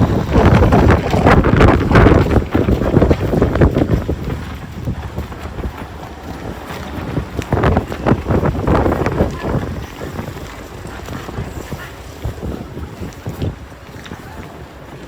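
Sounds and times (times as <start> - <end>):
wind gusting against microphone: 0.0 - 15.0.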